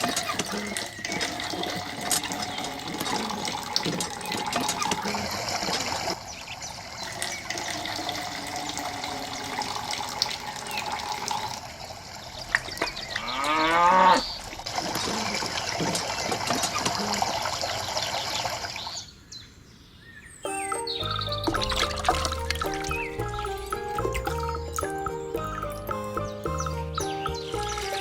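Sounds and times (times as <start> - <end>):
water running and splashing: 0.0 - 19.1, 20.5 - 28.0
cow mooing: 13.2 - 14.3.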